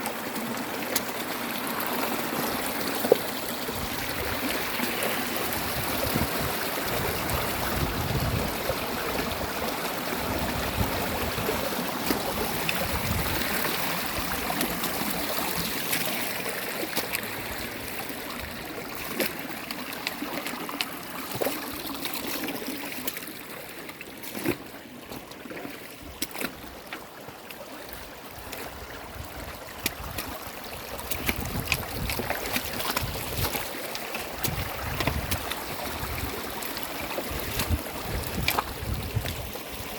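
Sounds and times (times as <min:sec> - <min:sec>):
stream water running: 0:00.0 - 0:39.9
small sharp splashes and drips: 0:08.6 - 0:39.9.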